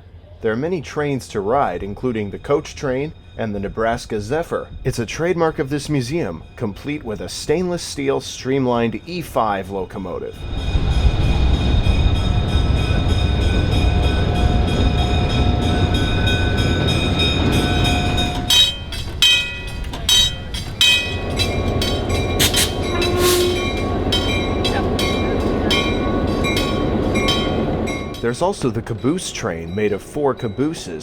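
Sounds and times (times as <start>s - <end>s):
diesel train engine rumble: 0.0s - 31.0s
train wheels clicking over rail joints: 10.8s - 31.0s.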